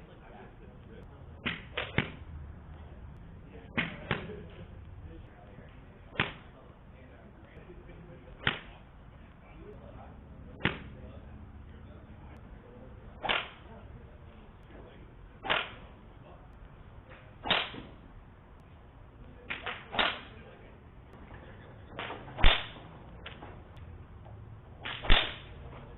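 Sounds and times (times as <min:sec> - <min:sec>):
sharp ball strikes: 0:01.4 - 0:02.3, 0:03.7 - 0:04.5, 0:06.1 - 0:06.5, 0:08.4 - 0:08.8, 0:10.5 - 0:11.1, 0:13.2 - 0:13.7, 0:15.4 - 0:15.9, 0:17.4 - 0:18.0, 0:19.5 - 0:20.4, 0:21.9 - 0:23.5, 0:24.8 - 0:25.6.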